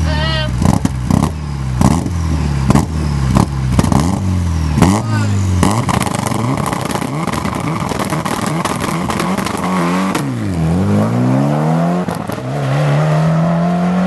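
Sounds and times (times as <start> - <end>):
rally car engine revving: 0.0 - 14.0
engine pops and cracks: 5.7 - 10.3.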